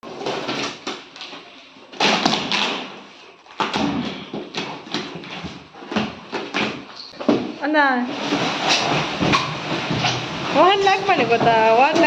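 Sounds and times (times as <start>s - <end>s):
packing rustling and scraping: 0.0s - 12.0s
knocks and thuds: 3.6s - 12.0s.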